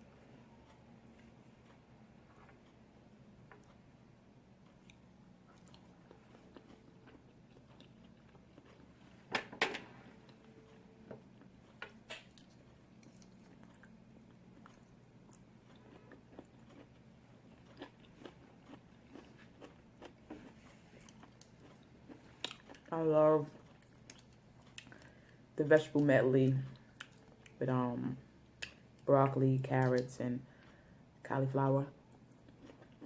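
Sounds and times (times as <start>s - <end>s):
person chewing: 4.6s - 9.2s, 11.4s - 25.3s, 26.7s - 27.6s, 32.2s - 33.0s.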